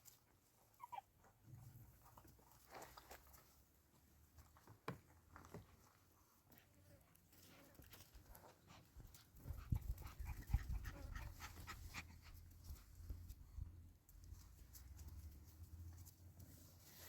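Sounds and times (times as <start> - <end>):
dog panting: 8.6 - 12.6.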